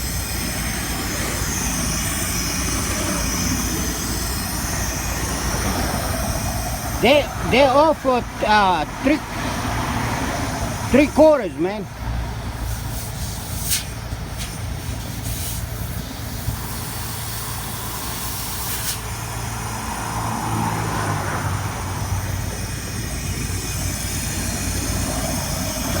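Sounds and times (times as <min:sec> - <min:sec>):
truck engine idling: 0:00.0 - 0:26.0
brief hisses: 0:12.7 - 0:15.7, 0:18.6 - 0:19.0.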